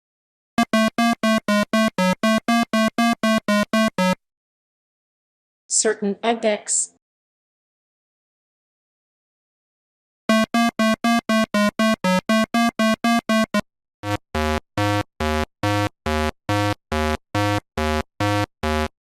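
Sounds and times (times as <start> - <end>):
synthesizer notes: 0.6 - 4.2, 10.3 - 18.9.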